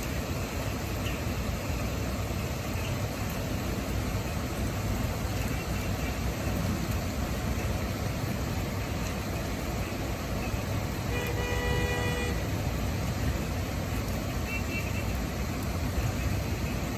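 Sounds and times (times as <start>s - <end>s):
downpour rushing: 0.0s - 16.9s
wind: 0.0s - 16.9s
vehicle horn: 11.0s - 12.6s, 14.5s - 15.2s.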